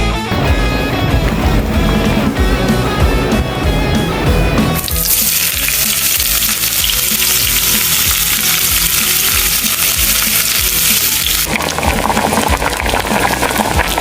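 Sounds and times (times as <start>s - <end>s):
food sizzling in a hot pan: 4.8s - 11.5s.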